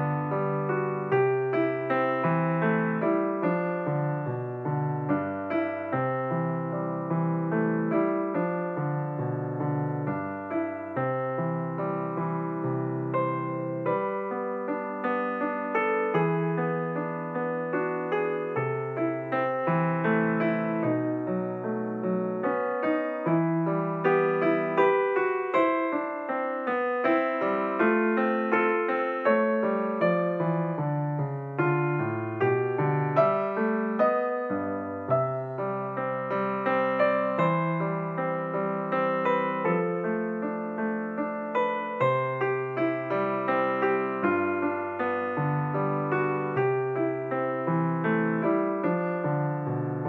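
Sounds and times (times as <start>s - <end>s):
solo piano: 0.0s - 50.0s.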